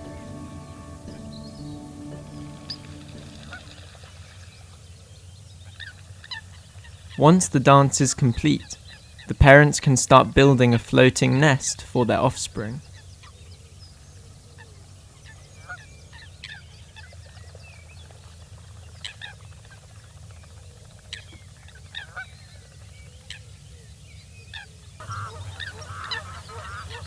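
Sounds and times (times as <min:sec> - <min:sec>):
waterbirds calling: 0:00.0 - 0:27.0.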